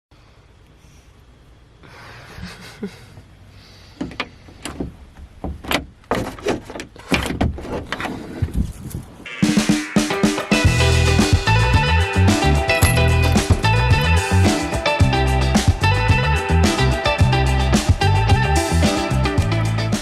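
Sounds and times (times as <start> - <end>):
sharp knocks and clunks: 4.0 - 8.6, 12.8 - 13.8.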